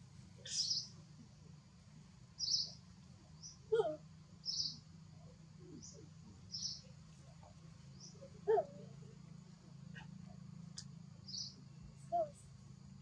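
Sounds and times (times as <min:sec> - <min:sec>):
low bird call: 0:00.4 - 0:00.9, 0:11.3 - 0:12.5
birds chirping: 0:00.4 - 0:01.0, 0:02.3 - 0:12.6.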